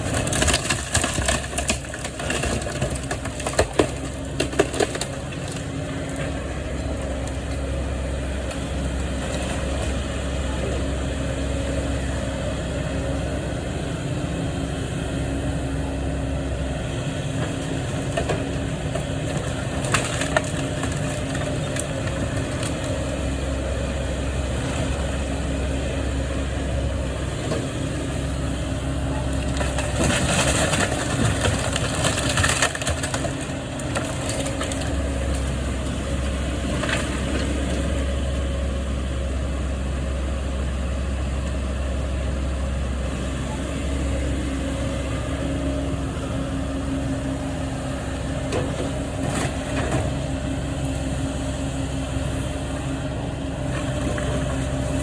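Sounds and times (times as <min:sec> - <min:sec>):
crunching and clattering debris: 0:00.0 - 0:07.6, 0:17.4 - 0:22.9, 0:29.1 - 0:37.9
heavy machine engine running: 0:00.0 - 0:55.0.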